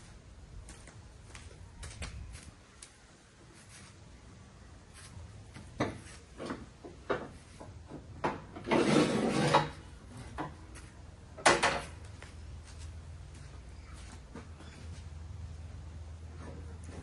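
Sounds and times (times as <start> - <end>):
scraping rub: 8.6 - 9.8.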